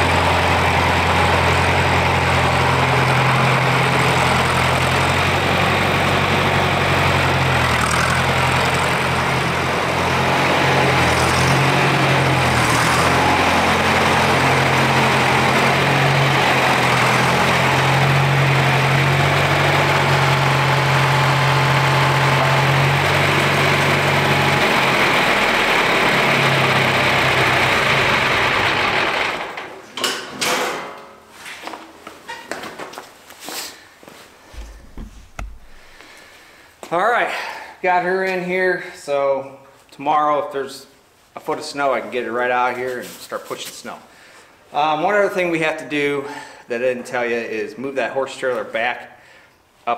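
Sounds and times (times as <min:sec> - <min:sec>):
tractor engine running: 0:00.0 - 0:29.6, 0:34.5 - 0:36.5
short knocks: 0:34.5 - 0:36.2.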